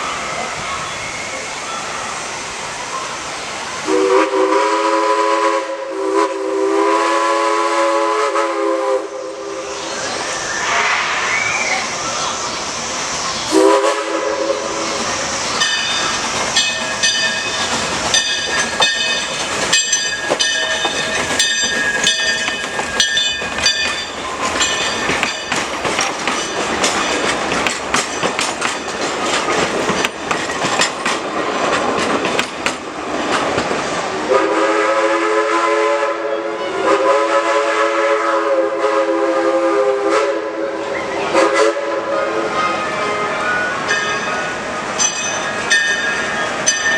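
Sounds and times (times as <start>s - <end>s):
steam locomotive clattering: 0.0s - 46.9s
bell ringing: 15.6s - 27.3s.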